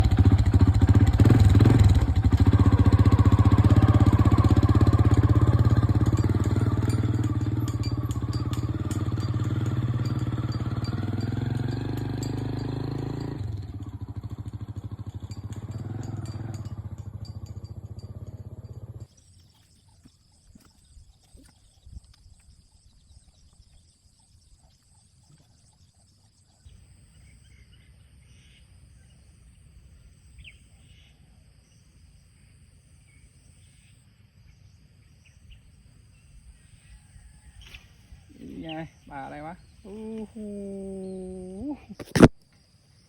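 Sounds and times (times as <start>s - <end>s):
engine running: 0.0s - 19.1s.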